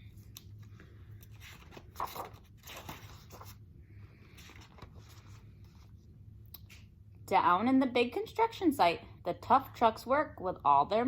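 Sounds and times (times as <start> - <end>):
faint room hum: 0.0 - 11.0
paper pages rustling: 0.5 - 3.6, 4.2 - 6.0.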